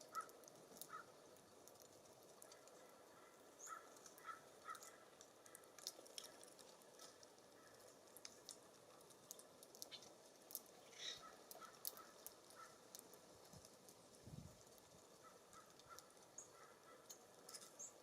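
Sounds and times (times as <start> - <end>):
small clicks: 3.6 - 14.0, 15.5 - 18.0
faint bird chirps: 10.8 - 11.4.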